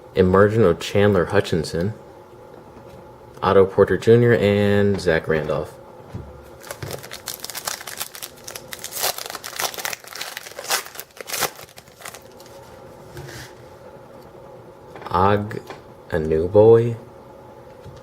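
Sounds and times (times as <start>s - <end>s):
plastic wrapper crinkling: 6.6s - 12.6s.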